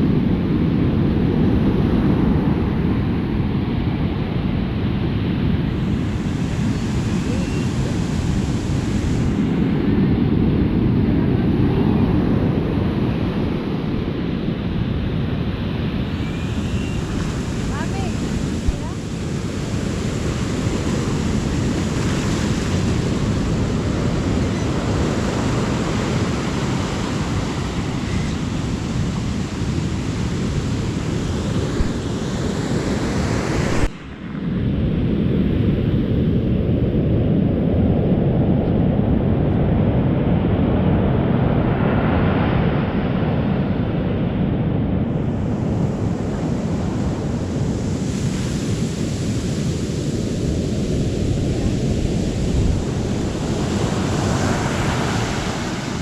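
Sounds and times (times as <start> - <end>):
ocean surf washing onto beach: 0.0 - 56.0
wind rumbling on microphone: 0.0 - 56.0.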